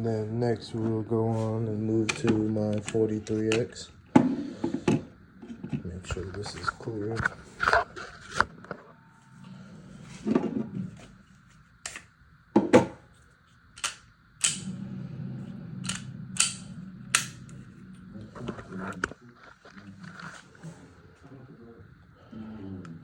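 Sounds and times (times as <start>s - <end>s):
pistol slide clicks and clacks: 13.8s - 14.7s, 15.9s - 17.4s.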